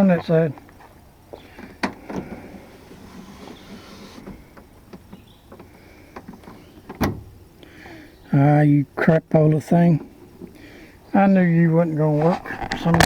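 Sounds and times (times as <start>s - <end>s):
faint background noise: 0.0s - 13.0s
sharp clicks and light knocks: 4.2s - 7.7s.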